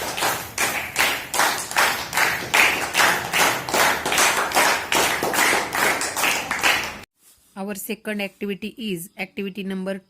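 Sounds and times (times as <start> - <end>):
hands clapping: 0.0 - 7.1.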